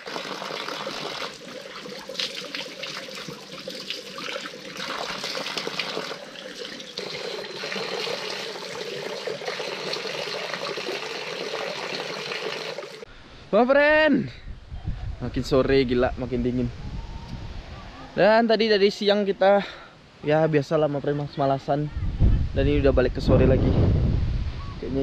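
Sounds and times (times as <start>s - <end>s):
stream water splashing: 0.0s - 13.1s.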